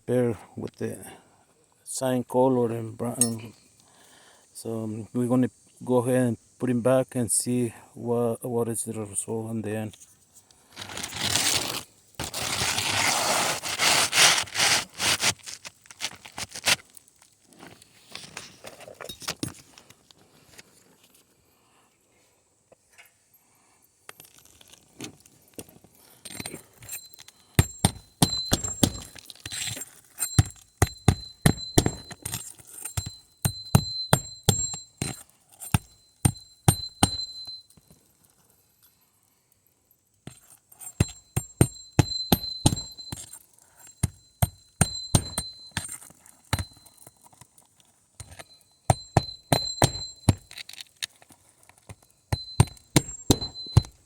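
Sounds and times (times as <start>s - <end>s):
hammer striking roofing nails: 27.6s - 37.6s, 41.0s - 43.3s, 43.9s - 46.8s, 48.2s - 50.6s, 52.3s - 54.0s.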